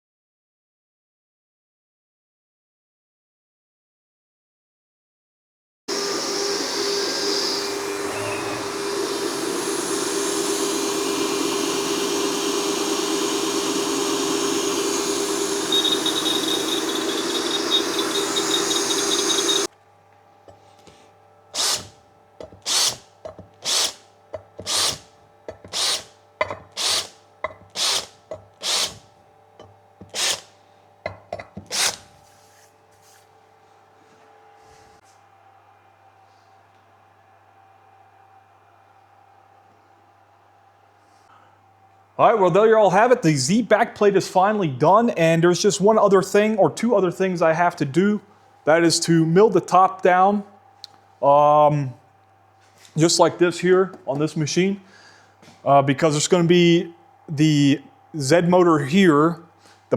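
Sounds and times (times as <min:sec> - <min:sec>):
milling spindle running: 0:05.9 - 0:19.7, 0:21.6 - 0:26.1, 0:26.7 - 0:29.0, 0:30.0 - 0:30.5.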